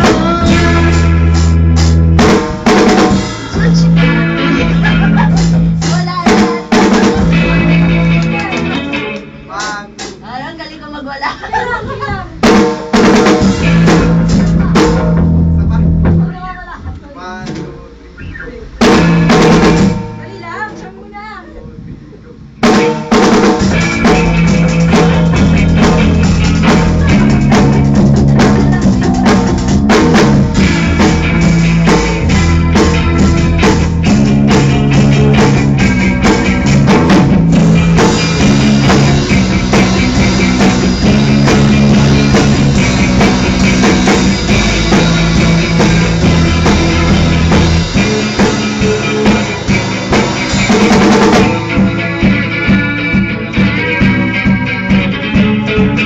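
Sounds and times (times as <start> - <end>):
bass drum and snare hits: 0.0 - 8.7, 12.4 - 16.3, 18.7 - 20.2, 22.6 - 52.9
bass line: 0.0 - 9.6, 12.1 - 16.8, 18.1 - 20.6, 22.6 - 56.0
live rock band playing: 0.0 - 16.8, 17.6 - 21.5, 22.5 - 56.0.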